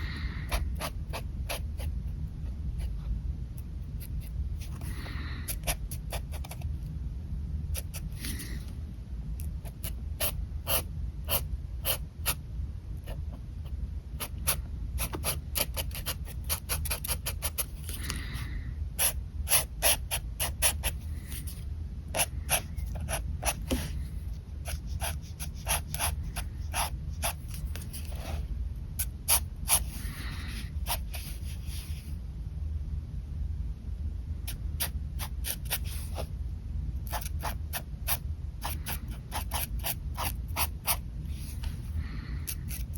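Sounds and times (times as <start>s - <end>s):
steady low hum: 0.0s - 42.9s
pen scratching on paper: 0.5s - 1.9s, 5.5s - 6.7s, 9.6s - 12.4s, 14.2s - 18.0s, 19.0s - 24.0s, 24.6s - 28.4s, 29.0s - 31.9s, 34.5s - 36.3s, 37.0s - 41.7s.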